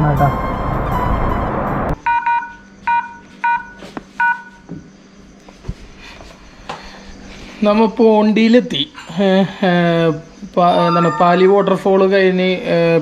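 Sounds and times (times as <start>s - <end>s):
loud rush of noise: 0.0s - 2.0s
short electronic beeps: 2.0s - 4.5s, 10.7s - 11.8s.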